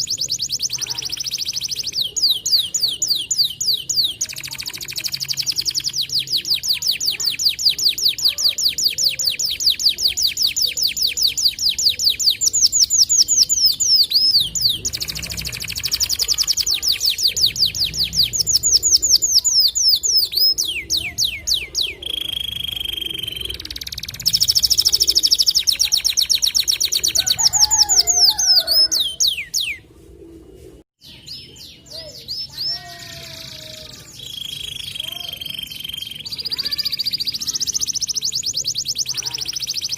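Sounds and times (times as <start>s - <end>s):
canary chirps: 0.0s - 29.8s, 31.0s - 39.9s
canary singing trills: 0.0s - 29.8s, 31.0s - 39.9s.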